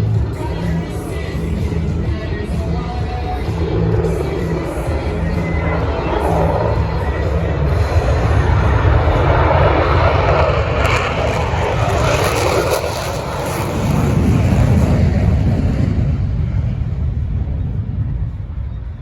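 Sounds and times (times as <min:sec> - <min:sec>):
jet fighter flying past: 0:00.2 - 0:19.0.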